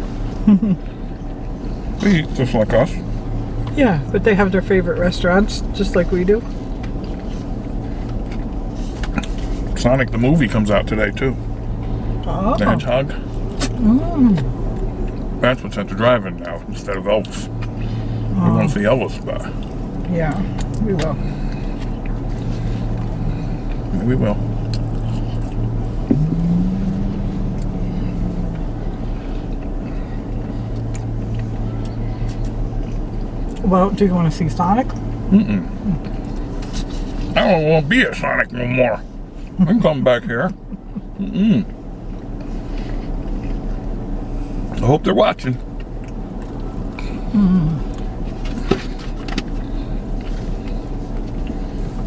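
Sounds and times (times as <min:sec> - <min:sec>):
car engine idling: 0:00.0 - 0:52.0
held hum-like tone: 0:20.2 - 0:33.5.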